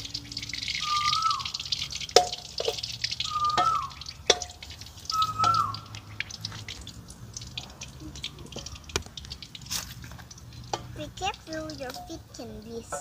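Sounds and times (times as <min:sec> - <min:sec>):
bird whistling: 0:00.8 - 0:01.6, 0:03.2 - 0:04.0, 0:05.1 - 0:05.9.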